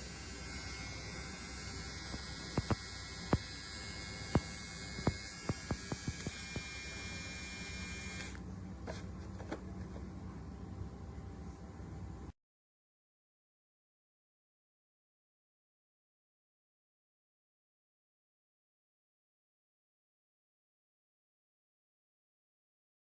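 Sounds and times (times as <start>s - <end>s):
electric trimmer whining: 0.0s - 10.0s.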